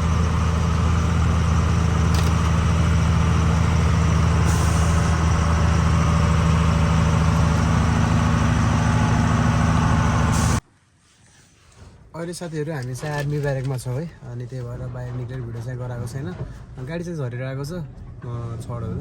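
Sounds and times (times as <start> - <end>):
truck diesel engine running: 0.0 - 10.6
short air hisses: 10.3 - 11.9.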